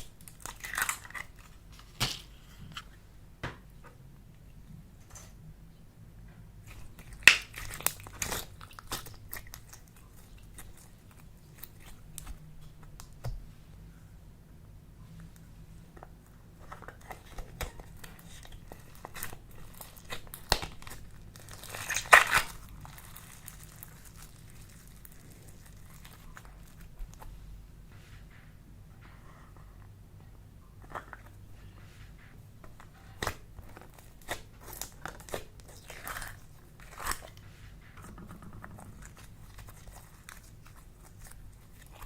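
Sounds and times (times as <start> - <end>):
clay slime crackling and popping: 0.0 - 2.8, 6.6 - 13.5, 16.2 - 27.3, 32.6 - 42.0.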